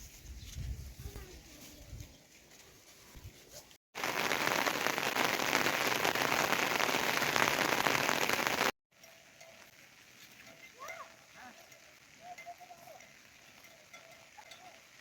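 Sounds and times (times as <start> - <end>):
heavy rain: 4.0 - 8.7.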